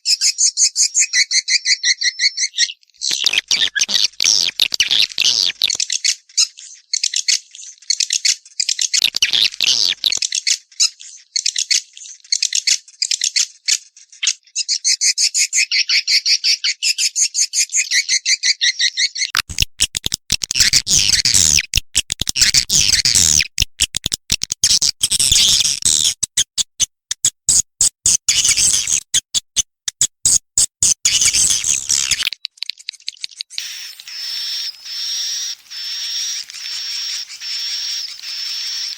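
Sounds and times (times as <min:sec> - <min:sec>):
swiftlets chattering trills: 0:33.6 - 0:38.9.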